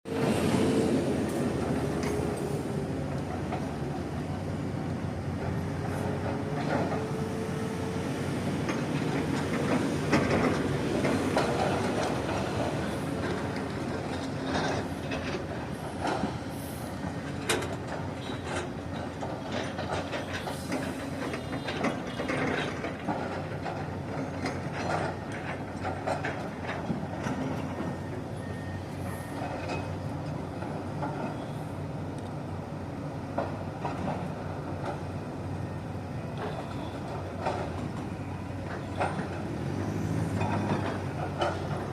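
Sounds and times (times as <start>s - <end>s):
diesel engine running: 0.1s - 41.9s
metal clanks and knocks: 36.4s - 41.9s.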